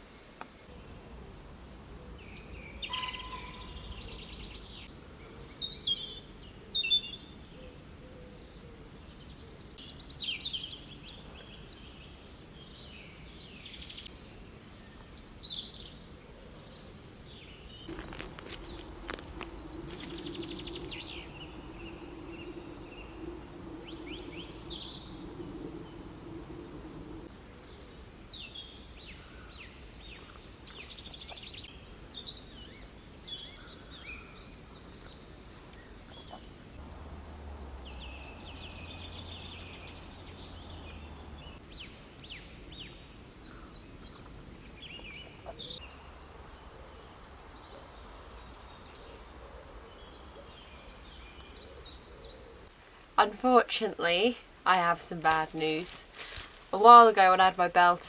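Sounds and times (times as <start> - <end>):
outdoor background noise: 0.0 - 58.0
birds chirping and trilling: 1.9 - 52.8
low steady hum: 17.9 - 27.4.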